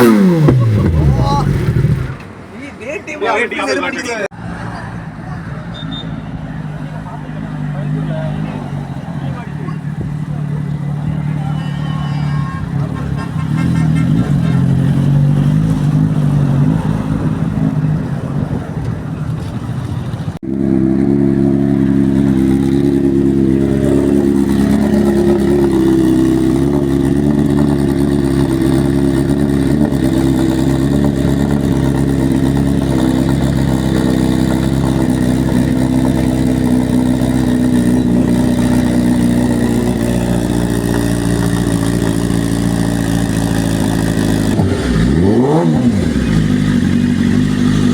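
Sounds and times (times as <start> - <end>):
motorcycle engine running: 0.0 - 2.3, 19.9 - 47.9.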